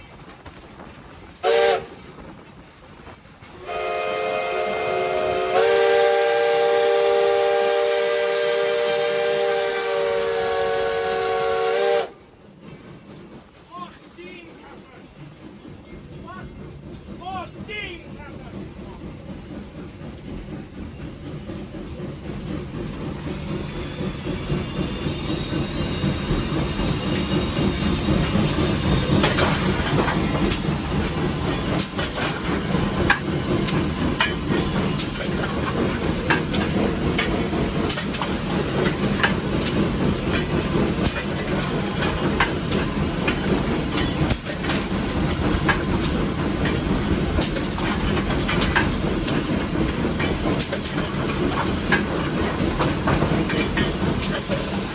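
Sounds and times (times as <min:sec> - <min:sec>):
steam locomotive rumble: 0:00.0 - 0:54.9
wheels clicking over rail joints: 0:12.4 - 0:54.9.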